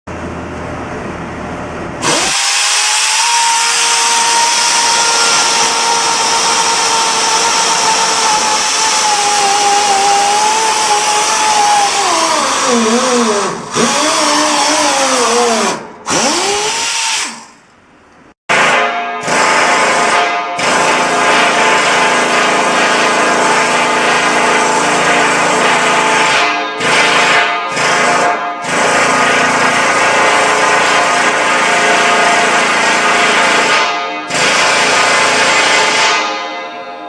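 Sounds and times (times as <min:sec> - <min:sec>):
power tool whining: 0:02.0 - 0:17.6.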